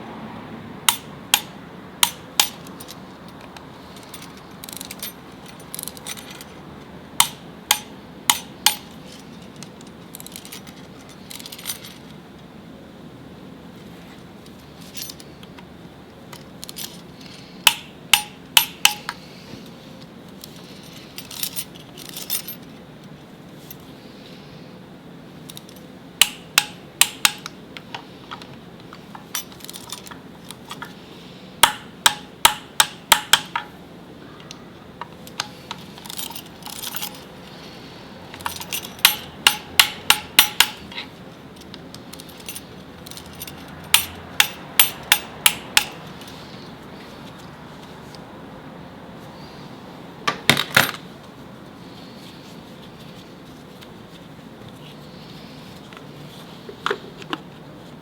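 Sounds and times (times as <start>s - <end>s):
metal tools clinking on metal: 0.9s - 6.6s, 7.2s - 12.2s, 16.4s - 19.2s, 20.4s - 22.7s, 29.2s - 31.0s, 34.4s - 46.6s.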